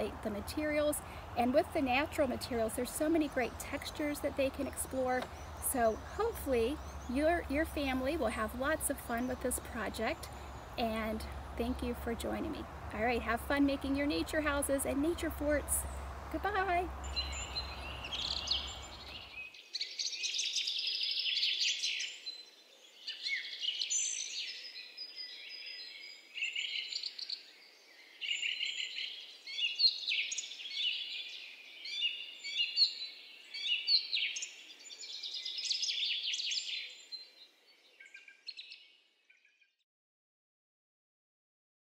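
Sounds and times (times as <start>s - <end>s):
faint steady hiss: 0.0s - 19.8s
songbirds singing and calling: 0.0s - 39.8s.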